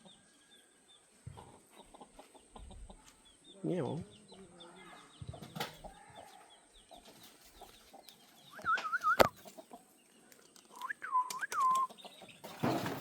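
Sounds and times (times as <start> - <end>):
chicken whistle-like calls: 8.4 - 9.4, 10.7 - 12.0.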